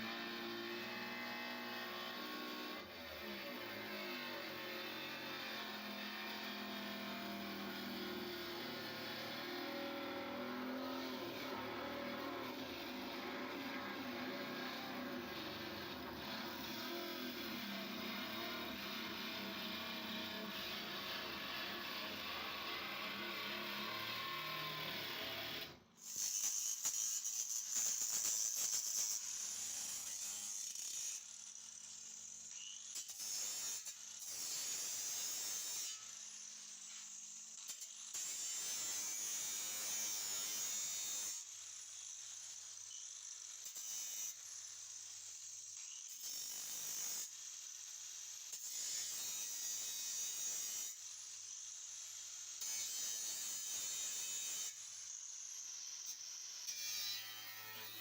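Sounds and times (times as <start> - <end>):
electric power tool grinding: 0.1 - 25.8.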